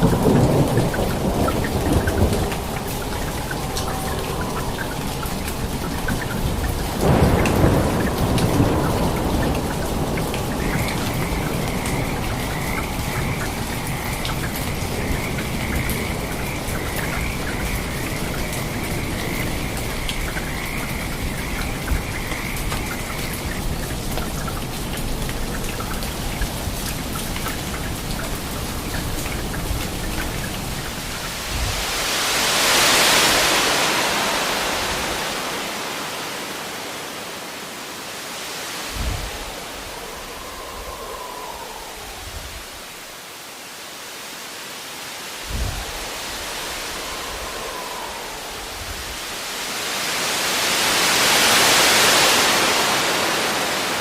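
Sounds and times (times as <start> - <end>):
thunder rolling: 0.0 - 24.0
steady rain: 0.0 - 54.0
hissing swell: 0.5 - 7.0, 38.6 - 43.1, 45.8 - 49.9.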